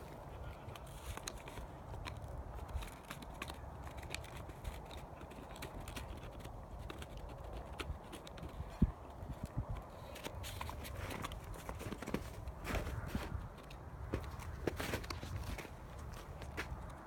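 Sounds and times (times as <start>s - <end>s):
teeth clicking on chew stick: 0.6s - 11.4s.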